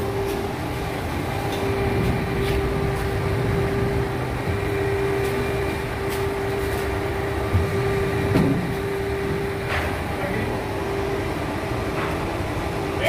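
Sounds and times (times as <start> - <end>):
crane engine humming: 0.0 - 13.0.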